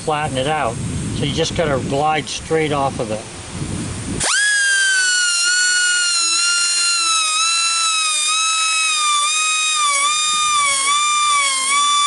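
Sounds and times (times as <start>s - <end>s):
rotary grinding tool whining: 4.2s - 12.0s.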